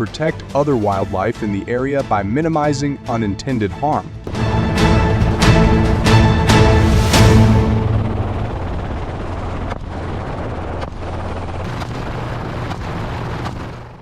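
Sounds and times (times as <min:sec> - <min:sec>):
helicopter running: 0:04.3 - 0:14.0
faint sharp cracks: 0:11.6 - 0:14.0.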